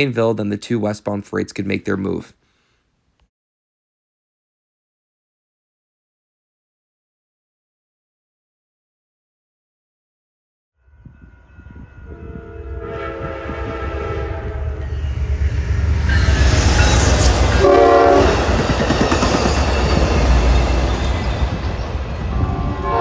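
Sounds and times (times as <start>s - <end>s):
train rumble and wheel noise: 10.9s - 23.0s
train air horn blast: 11.9s - 15.0s, 17.5s - 18.5s, 22.3s - 23.0s.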